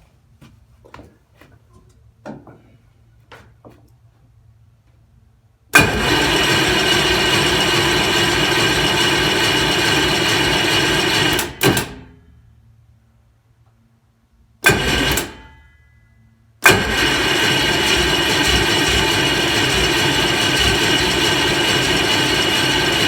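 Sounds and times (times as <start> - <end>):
diesel engine cranking: 5.8 - 12.1, 14.6 - 15.6, 16.6 - 23.0.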